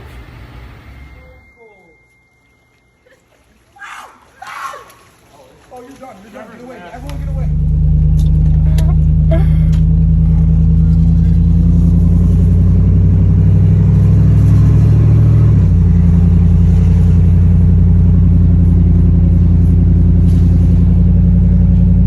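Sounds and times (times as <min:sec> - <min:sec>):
pickup truck engine running: 0:07.0 - 0:22.0.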